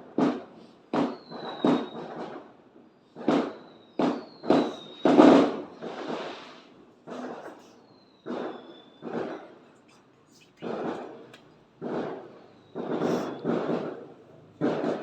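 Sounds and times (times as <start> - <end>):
fireworks banging: 0.0 - 15.0
falling firework whistle: 0.3 - 2.5, 3.3 - 9.6, 11.8 - 14.0.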